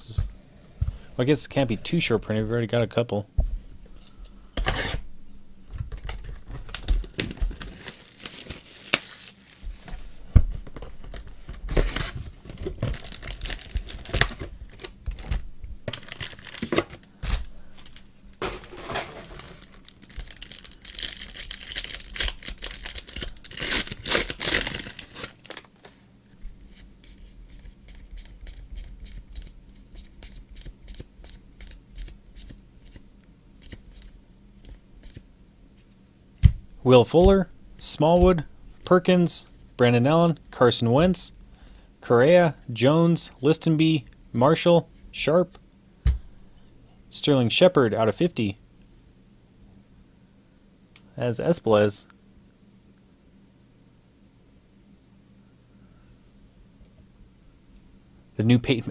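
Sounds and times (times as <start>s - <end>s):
card wrappers tearing and crinkling: 6.0s - 9.7s, 11.2s - 26.0s.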